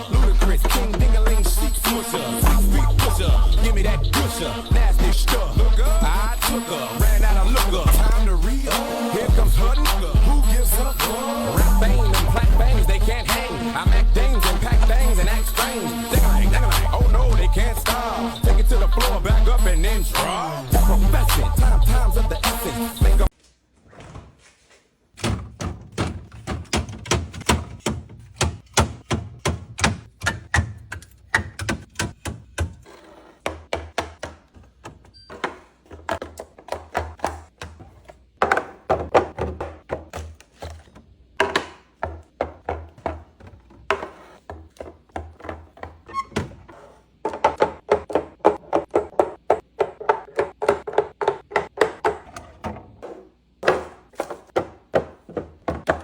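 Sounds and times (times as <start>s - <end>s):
groceries knocking on shelves: 0.0s - 2.7s, 25.1s - 56.0s.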